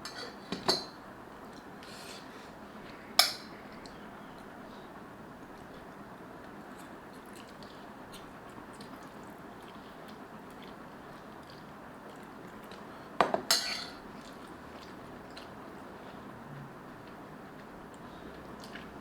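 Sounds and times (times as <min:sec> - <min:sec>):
utensils clinking against dish: 0:13.2 - 0:14.0.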